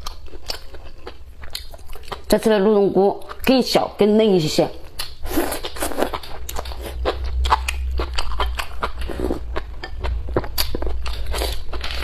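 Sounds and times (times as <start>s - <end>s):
chewing with wet mouth clicks: 0.0s - 2.4s, 4.9s - 12.0s.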